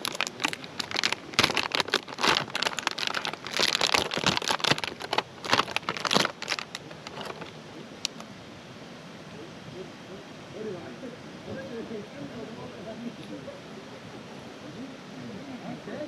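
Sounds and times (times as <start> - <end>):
food wrapper crinkling: 0.0 - 7.5.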